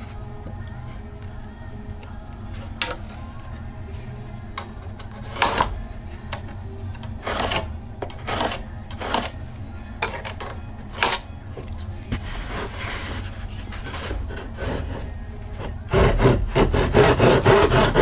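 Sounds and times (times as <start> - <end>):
steady low hum: 0.0 - 18.0
hand tool scraping wood: 5.2 - 5.7, 7.2 - 9.4, 12.1 - 18.0.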